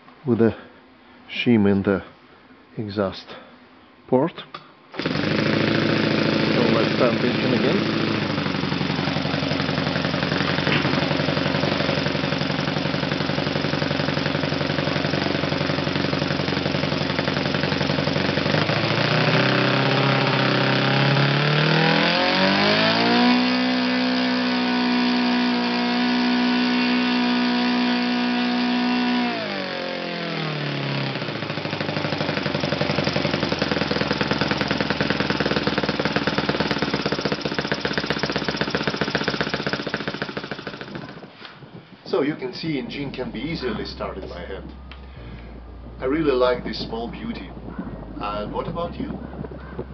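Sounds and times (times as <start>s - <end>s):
model engine turning propeller: 4.9s - 41.4s.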